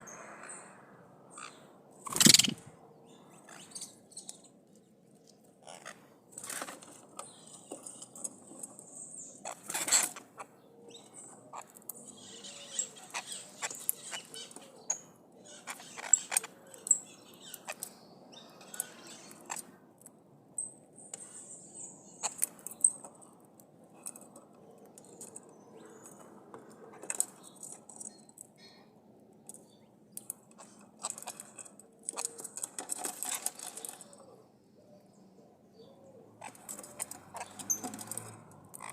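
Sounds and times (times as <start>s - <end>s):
parrot chirping and calling: 1.4s - 2.7s, 12.2s - 16.5s
small clicks and ticks: 22.2s - 28.7s, 29.4s - 34.2s, 36.4s - 38.9s.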